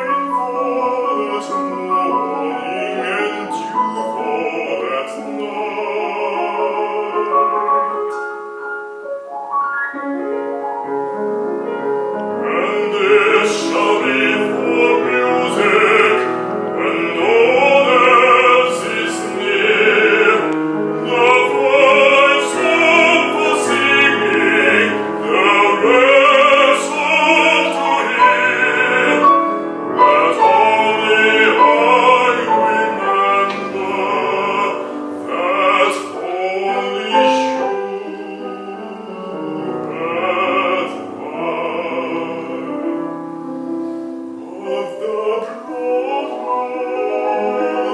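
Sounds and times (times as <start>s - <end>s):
piano accompaniment: 0.0s - 47.9s
bass voice singing operatically: 12.4s - 42.8s.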